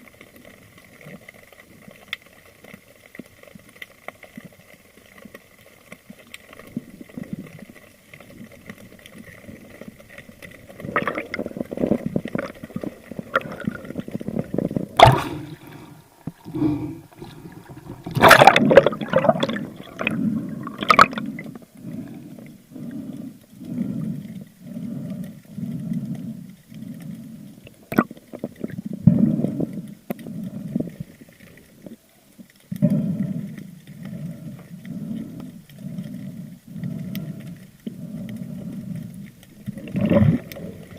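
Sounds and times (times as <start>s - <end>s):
water gurgling underwater: 10.5s - 22.9s, 27.6s - 32.0s, 39.5s - 40.9s.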